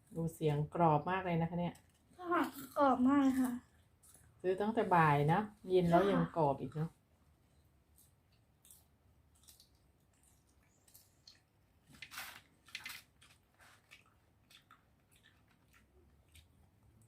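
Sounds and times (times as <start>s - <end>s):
crunchy chewing: 7.9s - 17.0s.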